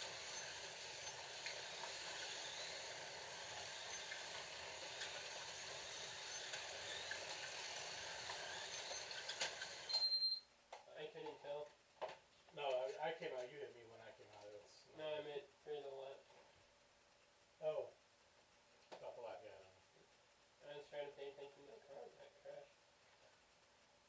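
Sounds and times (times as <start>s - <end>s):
slot car motors whirring: 0.0s - 10.1s
short high electronic beep: 9.9s - 10.5s.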